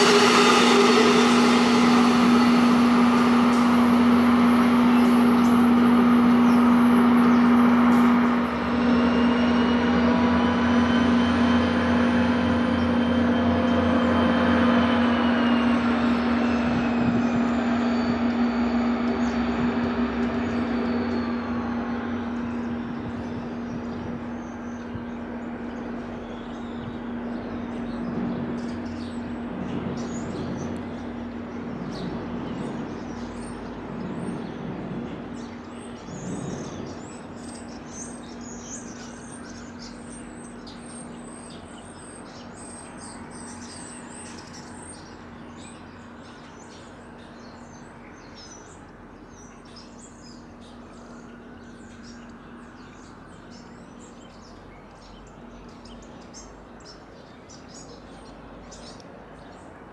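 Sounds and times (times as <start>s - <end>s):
birds chirping: 0.0s - 9.3s
steady low hum: 0.0s - 42.6s
electric train motor whine: 0.0s - 43.8s.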